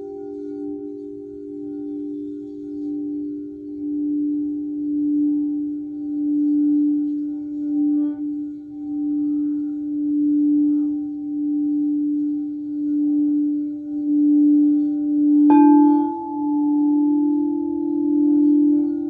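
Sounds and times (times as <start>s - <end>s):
singing bowl ringing: 0.0s - 19.0s
singing bowl strike: 15.2s - 19.0s.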